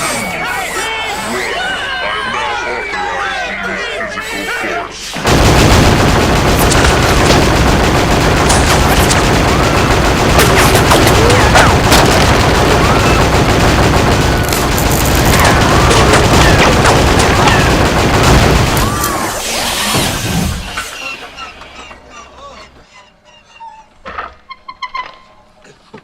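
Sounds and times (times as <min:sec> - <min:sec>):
rapid gunfire: 0:05.2 - 0:20.2.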